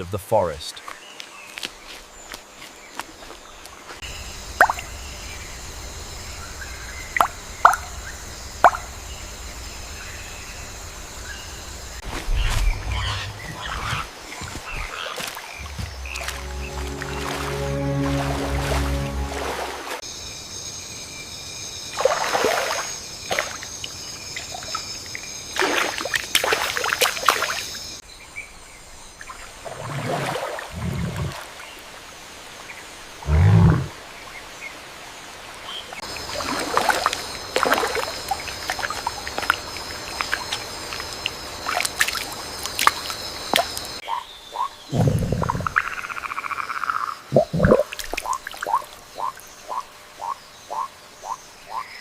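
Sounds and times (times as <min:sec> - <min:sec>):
water trickling and sloshing: 0:02.0 - 0:20.0, 0:21.9 - 0:27.8, 0:29.1 - 0:32.8, 0:35.3 - 0:44.0, 0:47.4 - 0:50.3
water splashes: 0:04.6 - 0:05.0, 0:12.2 - 0:20.0, 0:21.9 - 0:23.8, 0:25.5 - 0:27.7, 0:29.2 - 0:32.2, 0:35.5 - 0:44.0, 0:47.3 - 0:49.4
short low rumbles: 0:12.1 - 0:14.1
high-pitched drone: 0:15.6 - 0:20.0.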